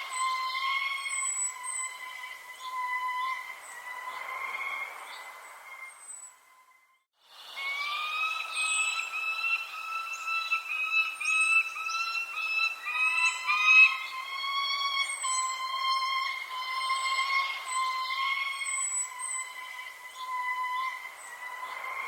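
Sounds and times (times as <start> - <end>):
birds chirping: 0.0 - 22.0
steady pitched whistling tone: 0.0 - 22.0.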